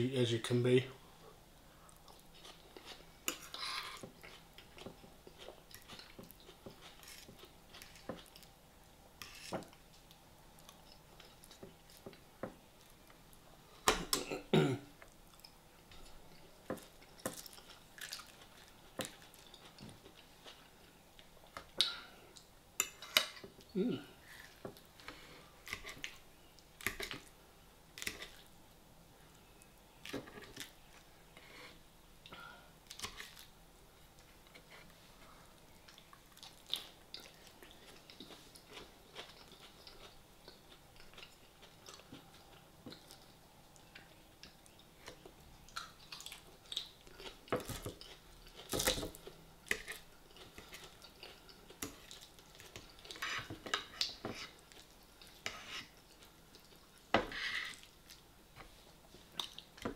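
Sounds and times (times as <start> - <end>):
person chewing crunchy lettuce: 17.2 - 20.7.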